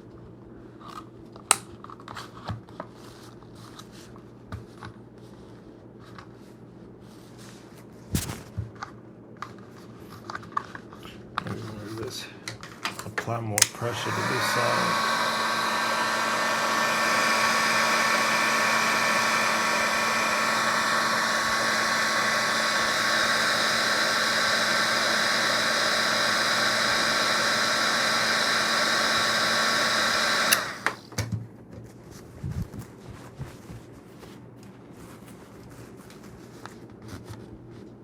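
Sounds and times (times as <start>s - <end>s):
heat gun whining: 13.6s - 31.1s.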